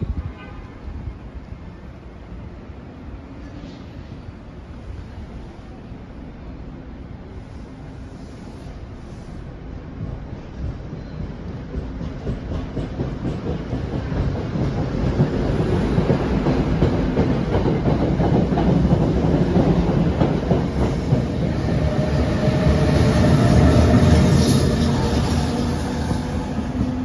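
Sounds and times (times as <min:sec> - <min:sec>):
train wheels clicking over rail joints: 0:10.6 - 0:22.5
locomotive passing: 0:11.6 - 0:27.0.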